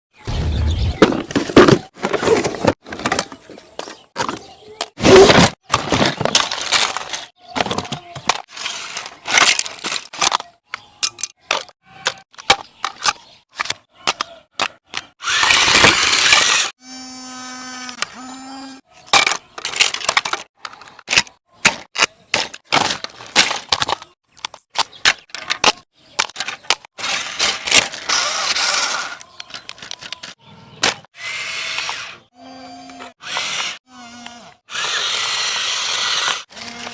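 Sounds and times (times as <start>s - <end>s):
sharp cracks and clattering knocks: 19.1s - 28.2s.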